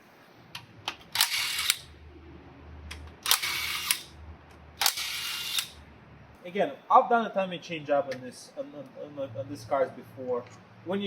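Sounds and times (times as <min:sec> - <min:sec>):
power tool bursts: 0:04.8 - 0:05.8.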